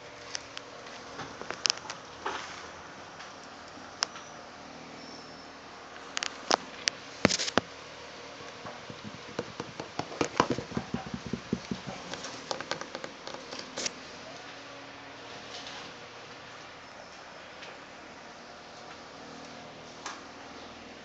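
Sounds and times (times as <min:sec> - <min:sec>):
sharp clicks and taps: 0:08.9 - 0:13.6.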